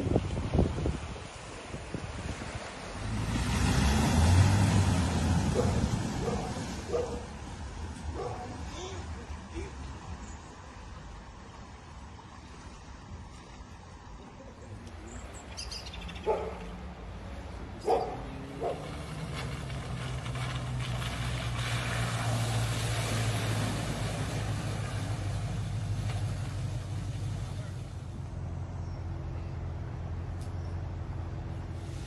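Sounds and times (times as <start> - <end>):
road noise: 0.0 - 32.0
vehicle engine approaching: 1.4 - 9.5, 14.0 - 32.0
dog barking: 5.6 - 7.3, 8.1 - 8.6, 16.2 - 16.7, 17.8 - 18.8.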